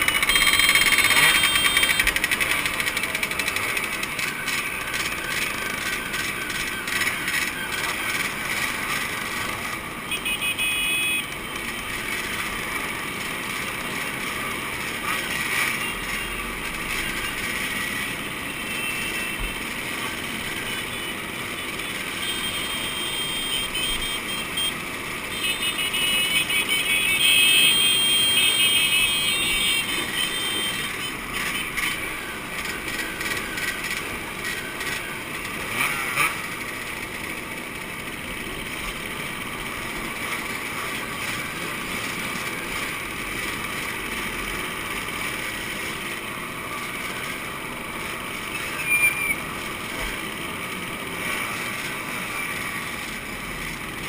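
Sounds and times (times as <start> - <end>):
two-stroke motorcycle engines revving: 0.0 - 54.0.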